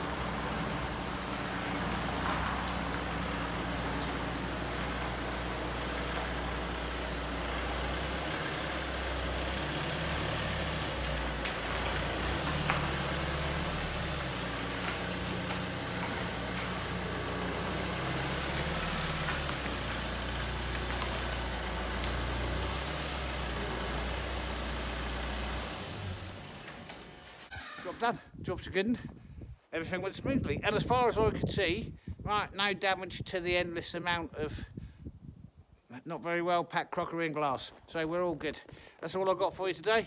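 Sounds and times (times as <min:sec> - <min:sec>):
road noise rushing: 0:00.0 - 0:27.5
van engine running: 0:00.0 - 0:27.5.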